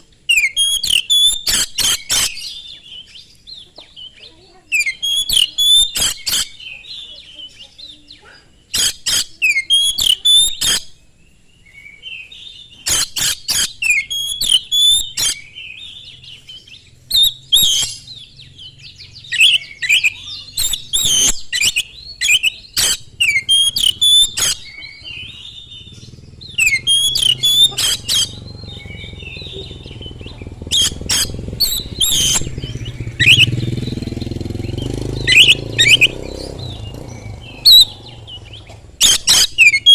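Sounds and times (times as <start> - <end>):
bird singing sharp whistles: 0.0 - 2.8, 4.7 - 6.8, 8.7 - 11.0, 12.7 - 15.8, 17.1 - 24.8, 25.5 - 39.9
low rumble: 27.7 - 38.8.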